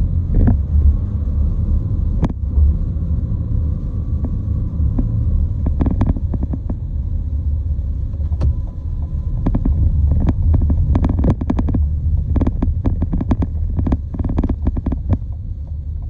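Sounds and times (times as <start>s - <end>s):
vehicle rumbling: 0.0s - 16.0s
short irregular clicks and knocks: 8.1s - 15.8s.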